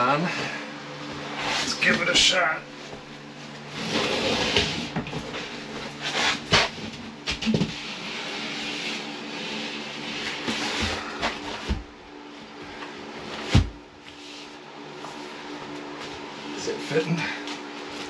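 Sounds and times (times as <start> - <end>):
drywall sheet scraping on wood: 1.2 - 2.0, 3.7 - 11.7.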